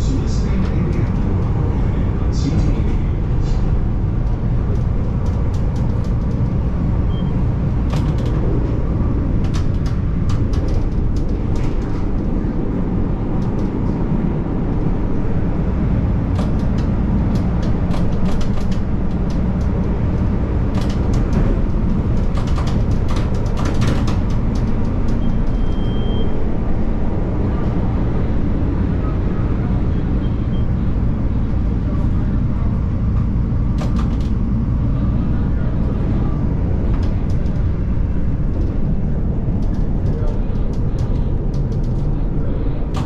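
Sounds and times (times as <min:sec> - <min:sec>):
train wheels rumbling on rail: 0:00.0 - 0:43.0
sharp clicks and clacks: 0:03.5 - 0:06.8, 0:07.8 - 0:08.8, 0:09.4 - 0:12.3, 0:16.2 - 0:26.2, 0:33.0 - 0:34.7.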